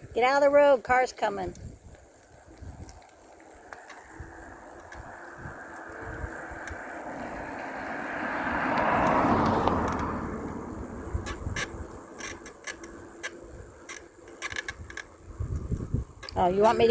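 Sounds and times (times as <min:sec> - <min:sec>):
car passing: 0:03.1 - 0:15.4.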